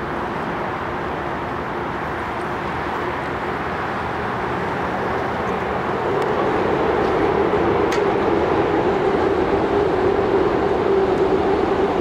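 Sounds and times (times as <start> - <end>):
electric train rumbling on bridge: 0.0 - 12.0.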